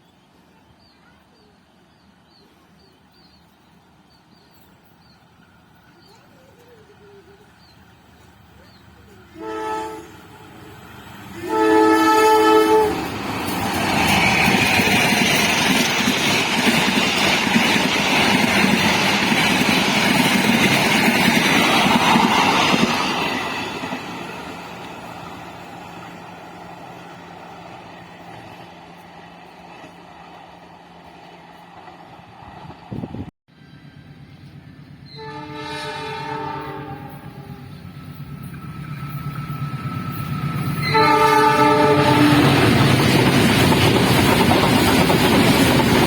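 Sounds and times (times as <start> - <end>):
train passing at speed: 0.0 - 46.0
train horn blast: 9.3 - 13.6, 35.1 - 37.8, 40.7 - 42.8.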